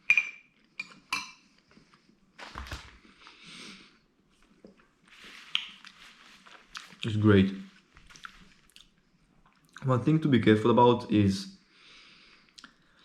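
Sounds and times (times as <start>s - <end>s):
scraping and eating: 4.3s - 9.8s.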